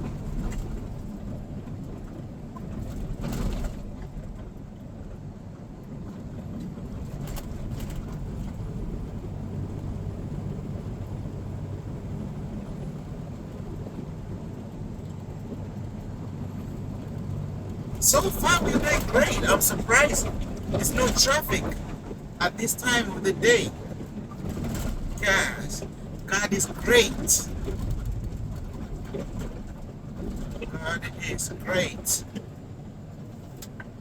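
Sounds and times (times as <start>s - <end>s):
truck engine rumble in cab: 6.7s - 34.0s
road noise: 16.8s - 34.0s.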